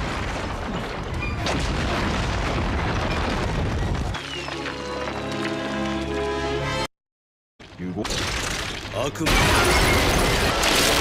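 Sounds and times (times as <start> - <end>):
rubble falling and rumbling: 0.0 - 6.0.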